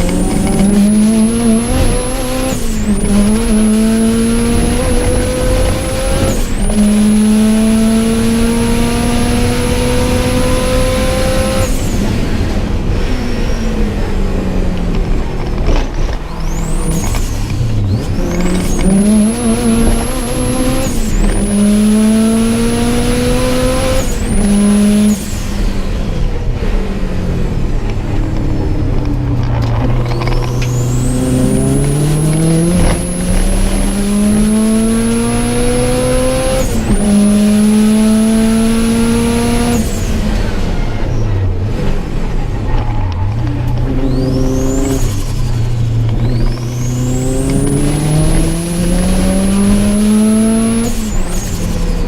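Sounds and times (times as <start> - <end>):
car engine under full throttle: 0.0 - 52.0.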